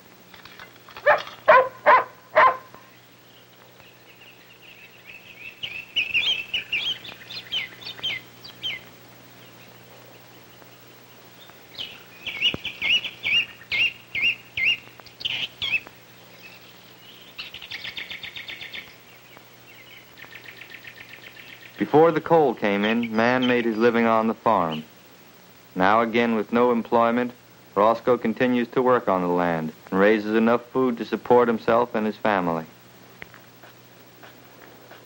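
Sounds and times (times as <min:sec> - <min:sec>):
songbirds chirping and trilling: 0:00.0 - 0:35.0
dog barking: 0:01.0 - 0:02.9.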